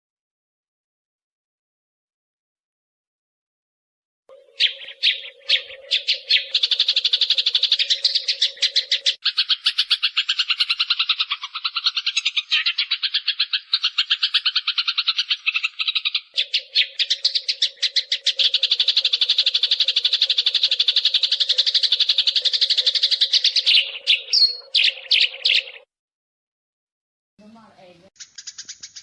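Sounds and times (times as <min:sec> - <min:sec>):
sparrow chattering: 0:04.3 - 0:25.8, 0:28.2 - 0:29.0.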